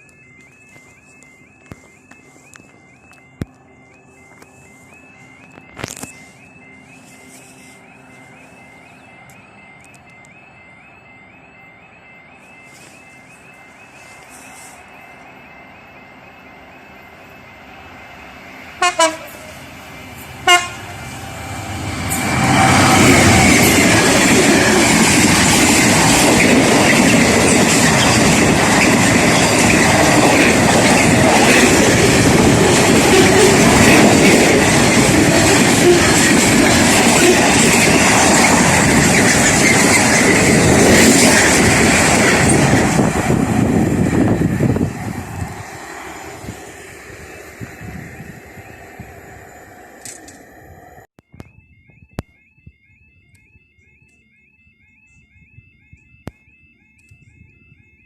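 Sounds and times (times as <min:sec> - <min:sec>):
warbling crossing alarm: 0:00.0 - 0:58.0
train wheels rushing on rails: 0:12.6 - 0:51.0
train horn blasts: 0:18.8 - 0:23.4.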